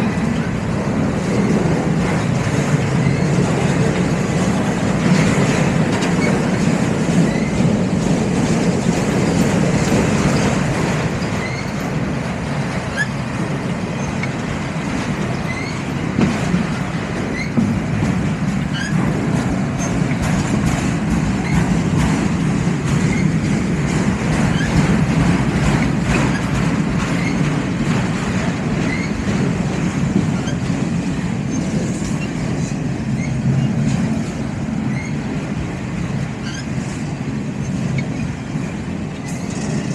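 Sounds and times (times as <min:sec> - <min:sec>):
freight train rumbling on rails: 0:00.0 - 0:39.9
high wheel squeaks: 0:03.0 - 0:03.4, 0:06.0 - 0:07.7, 0:11.2 - 0:12.0, 0:12.9 - 0:13.3, 0:15.3 - 0:16.1, 0:17.3 - 0:17.7, 0:18.6 - 0:19.0, 0:21.4 - 0:22.1, 0:23.0 - 0:23.7, 0:24.4 - 0:25.0, 0:25.6 - 0:27.6, 0:28.8 - 0:29.3, 0:30.2 - 0:30.8, 0:31.4 - 0:33.8, 0:34.8 - 0:35.3, 0:36.4 - 0:37.0, 0:37.6 - 0:39.9.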